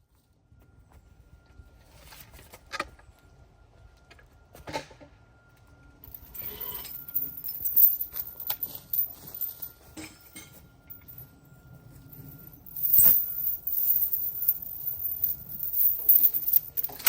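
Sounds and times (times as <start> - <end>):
metal chains rattling: 6.1 - 9.7, 12.5 - 17.0.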